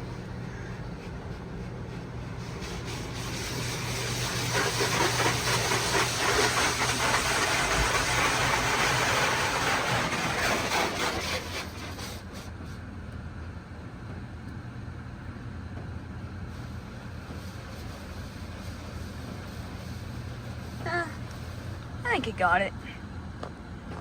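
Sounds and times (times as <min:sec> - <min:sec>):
machine hum: 0:00.0 - 0:12.0
high-pressure water spray: 0:01.8 - 0:12.8, 0:16.5 - 0:22.2.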